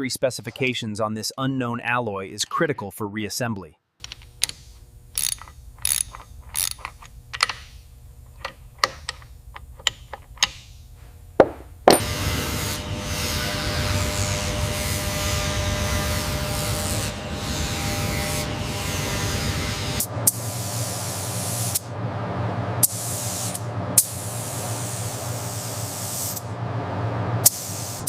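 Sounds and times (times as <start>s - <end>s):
hand wrench ratcheting: 4.0s - 10.7s.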